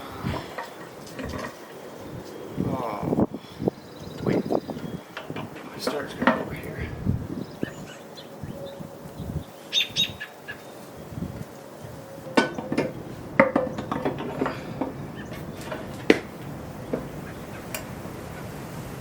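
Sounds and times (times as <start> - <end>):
metal knocks and clunks: 0.3 - 1.8, 4.8 - 6.8, 12.3 - 17.2.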